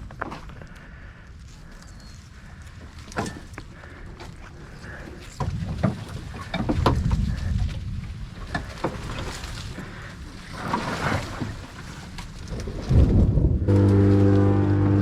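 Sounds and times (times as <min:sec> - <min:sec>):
wind on microphone: 0:05.3 - 0:10.1, 0:12.3 - 0:15.0.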